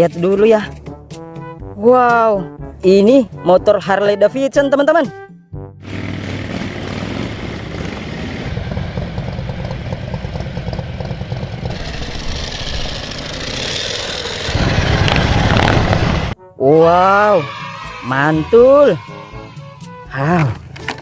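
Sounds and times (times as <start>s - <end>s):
motorcycle engine idling: 5.8s - 14.7s.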